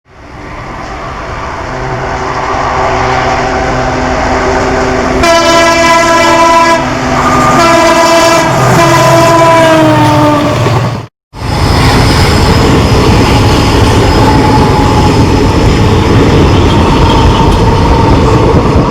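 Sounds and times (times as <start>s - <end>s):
diesel locomotive accelerating: 0.1s - 18.9s
train horn blasts: 5.0s - 10.6s.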